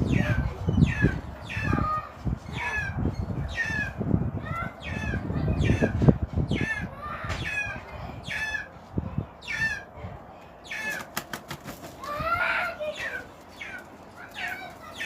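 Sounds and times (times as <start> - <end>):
wings fluttering: 10.8 - 15.0.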